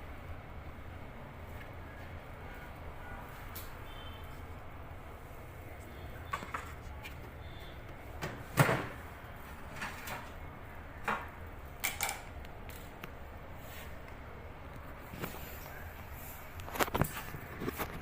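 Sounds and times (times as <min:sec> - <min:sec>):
clicks and knocks of parts handled: 0:11.0 - 0:13.2.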